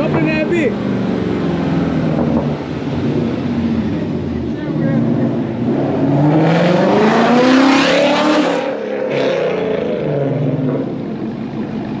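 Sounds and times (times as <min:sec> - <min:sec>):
car engine revving hard: 0:05.0 - 0:10.9.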